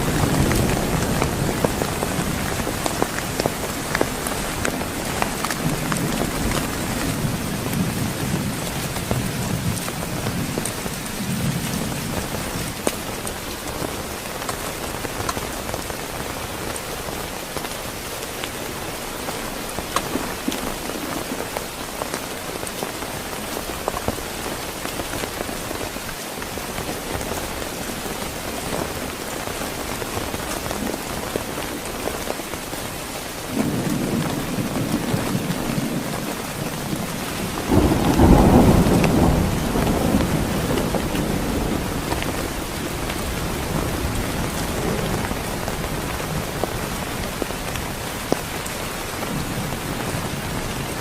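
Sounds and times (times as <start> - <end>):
thunder rumbles: 0.0 - 17.5, 33.4 - 51.0
heavy rain: 0.0 - 51.0
raindrops ticking on a surface: 0.0 - 51.0.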